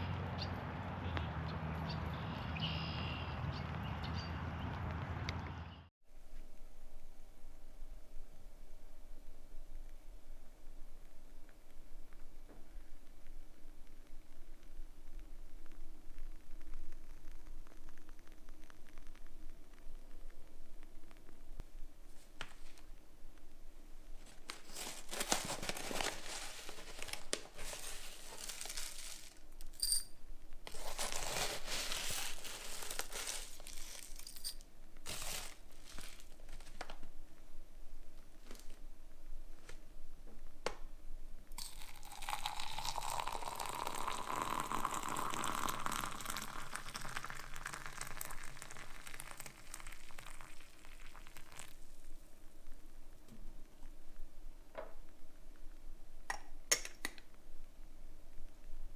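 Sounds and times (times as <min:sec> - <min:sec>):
packet crinkling and tearing: 0:24.2 - 0:29.9, 0:30.6 - 0:37.1
water pouring: 0:24.5 - 0:29.9, 0:41.6 - 0:52.2
light clink: 0:29.7 - 0:30.2.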